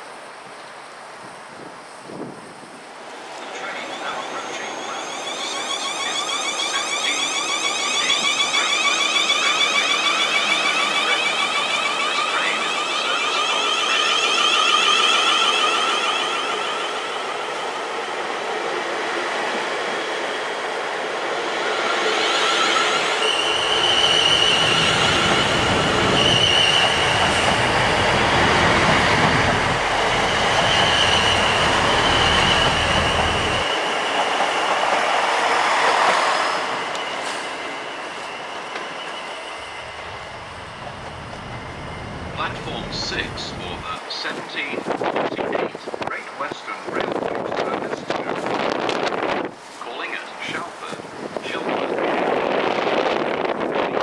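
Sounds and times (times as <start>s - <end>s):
train wheels rumbling on rails: 3.3s - 54.0s
high wheel squeal: 3.4s - 17.8s, 21.7s - 34.7s, 35.6s - 43.4s
train motor whining: 4.2s - 17.1s, 22.4s - 33.7s.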